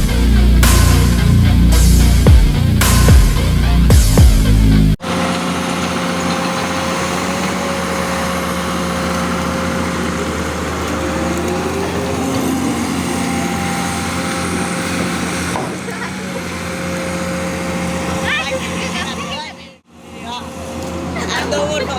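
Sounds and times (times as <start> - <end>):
loud electronic music: 0.0 - 5.0
thin steady whine: 0.0 - 16.0
excavator diesel engine running: 0.0 - 21.9.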